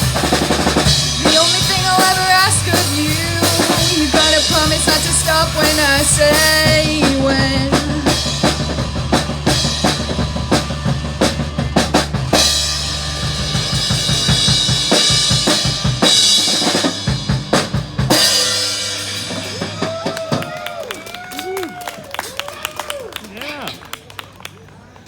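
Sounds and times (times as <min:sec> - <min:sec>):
held bass note: 0:00.0 - 0:18.1
drum fills: 0:00.0 - 0:21.0
live rock band: 0:00.0 - 0:21.5
singing voice: 0:01.2 - 0:08.6.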